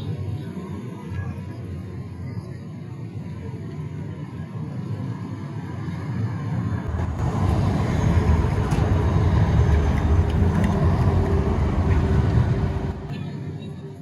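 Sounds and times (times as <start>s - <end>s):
tram rumbling past: 6.6s - 13.5s.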